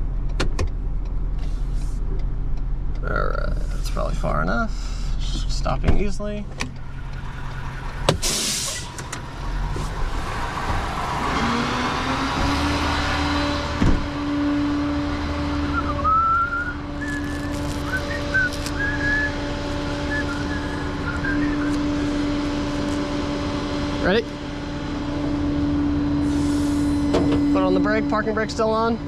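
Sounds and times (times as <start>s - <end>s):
tow truck hydraulics drone: 6.8s - 28.4s
short high squeaks: 17.0s - 22.2s.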